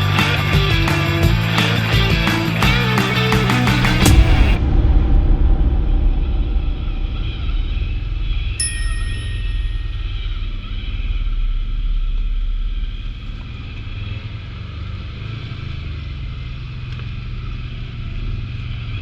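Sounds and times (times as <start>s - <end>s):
atv engine running: 0.0s - 4.6s, 10.4s - 19.0s.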